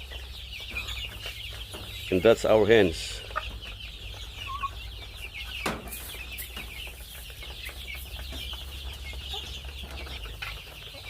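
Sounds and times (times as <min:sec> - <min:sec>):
chickens peeping and clucking: 0:00.0 - 0:11.0.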